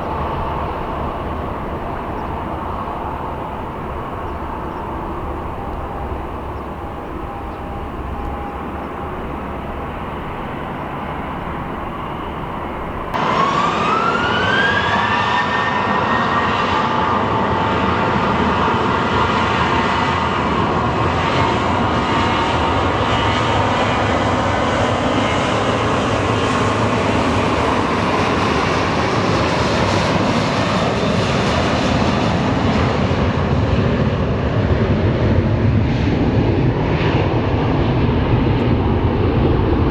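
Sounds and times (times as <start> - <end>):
jet engines spooling up: 0.0 - 20.2
steady engine: 0.0 - 39.9.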